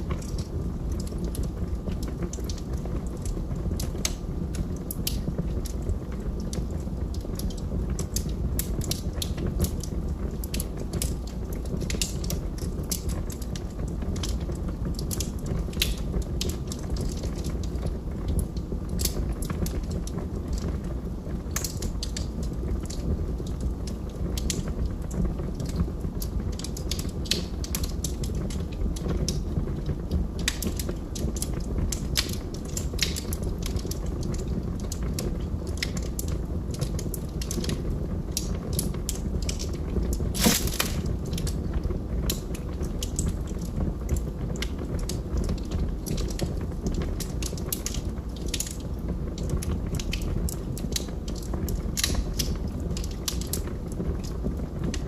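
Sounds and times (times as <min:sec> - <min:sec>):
log fire crackling: 0:00.0 - 0:55.0.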